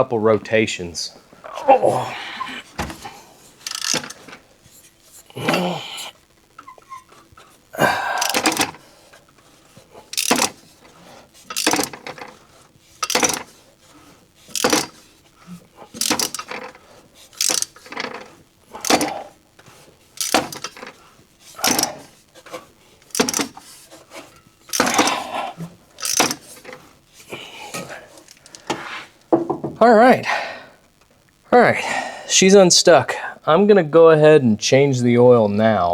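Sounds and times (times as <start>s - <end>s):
metallic ratchet clicking: 3.6s - 4.4s, 8.1s - 8.8s, 10.1s - 12.4s, 13.0s - 13.6s, 14.5s - 15.1s, 16.0s - 19.3s, 20.2s - 22.1s, 23.0s - 23.8s, 24.7s - 25.4s, 26.0s - 26.8s, 28.2s - 28.7s.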